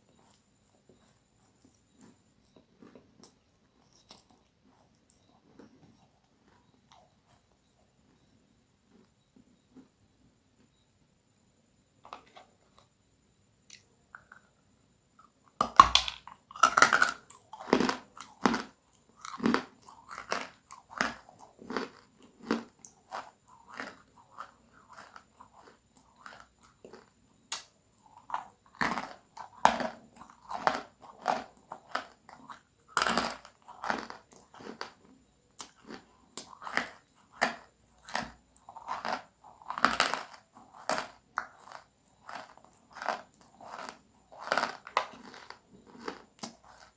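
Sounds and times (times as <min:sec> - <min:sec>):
crunchy food chewing: 0:00.0 - 0:10.0, 0:15.2 - 0:46.9.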